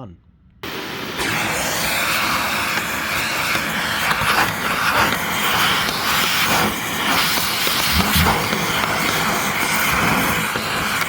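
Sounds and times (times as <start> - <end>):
vacuum cleaner running: 0.6 - 11.0.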